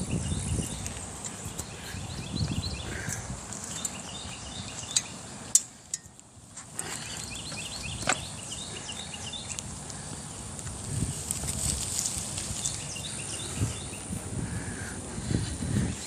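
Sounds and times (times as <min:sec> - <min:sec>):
bicycle tyres rumbling: 0:00.0 - 0:16.0
birds chirping: 0:00.0 - 0:16.0
bicycle clicks and knocks: 0:03.0 - 0:08.4
insects buzzing: 0:06.6 - 0:16.0.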